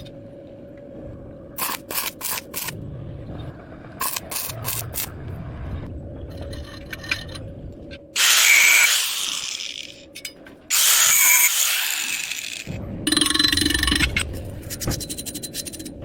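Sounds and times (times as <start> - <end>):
power tool hissing on metal: 8.2 - 10.0, 10.7 - 12.8.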